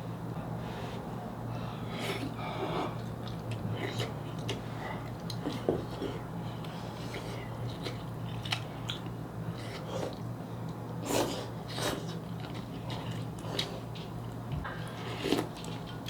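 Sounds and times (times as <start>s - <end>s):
low electrical hum: 0.0s - 16.0s
chewing food: 11.7s - 16.0s.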